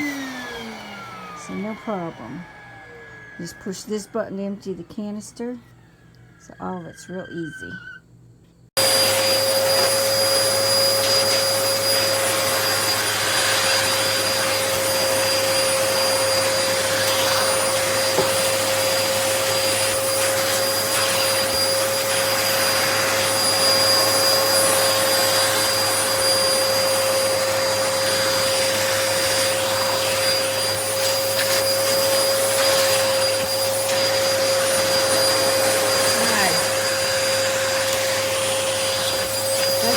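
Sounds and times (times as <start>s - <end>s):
vacuum cleaner running: 0.0s - 6.4s, 8.8s - 39.9s.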